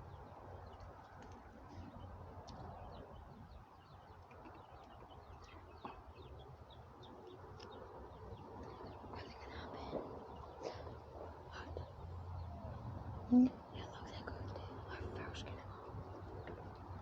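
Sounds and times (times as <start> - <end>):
chicks peeping: 0.0 - 12.9.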